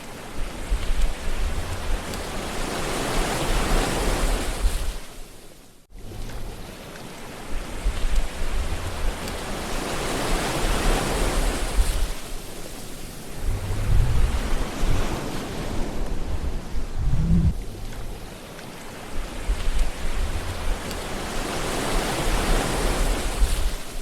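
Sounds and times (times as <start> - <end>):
ocean waves washing: 0.0 - 24.0
low rumbles: 7.7 - 9.4, 11.6 - 18.4, 19.1 - 21.4.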